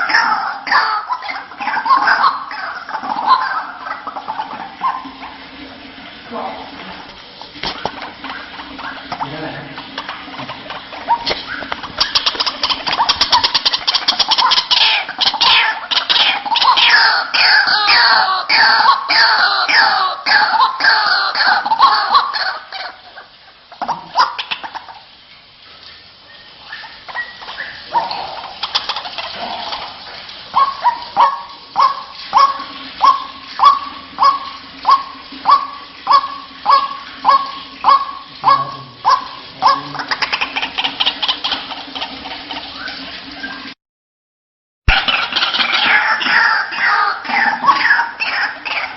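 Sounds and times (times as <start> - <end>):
waterhen calling: 0.0 - 43.8, 44.9 - 48.9
bird harsh clicking notes: 11.1 - 16.8, 26.7 - 29.8.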